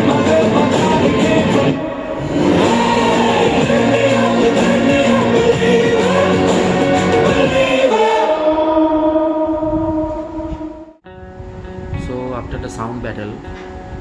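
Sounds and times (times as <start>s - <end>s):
pop song with choir-like vocals: 0.0s - 11.0s.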